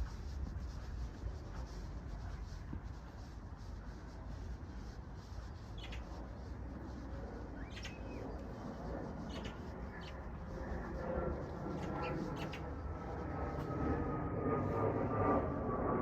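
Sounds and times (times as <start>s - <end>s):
low background rumble: 0.0s - 16.0s
birds chirping: 7.5s - 8.6s, 9.2s - 10.5s, 11.7s - 12.8s.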